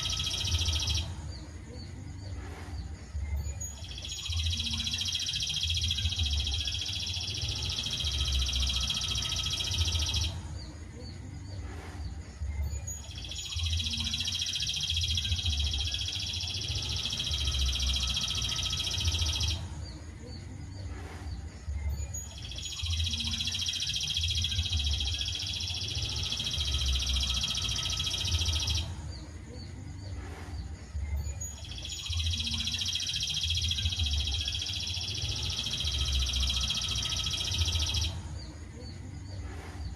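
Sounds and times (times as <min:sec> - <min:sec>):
bird trilling: 0:00.0 - 0:01.1, 0:03.4 - 0:10.4, 0:12.8 - 0:19.6, 0:22.0 - 0:28.9, 0:31.3 - 0:38.2.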